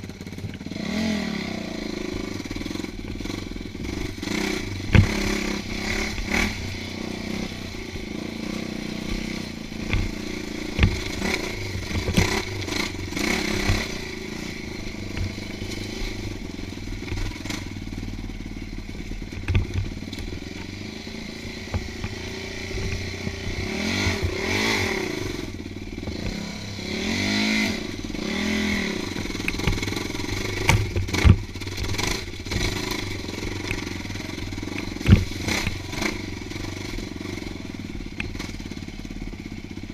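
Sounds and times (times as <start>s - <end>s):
dirt bike engine: 0.0s - 39.9s
knocks and clatter: 2.6s - 17.8s, 19.0s - 26.5s, 29.0s - 37.4s.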